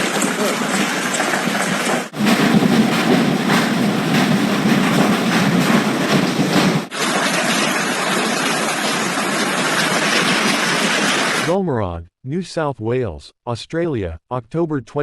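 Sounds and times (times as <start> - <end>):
hail pelting down: 0.0 - 11.5.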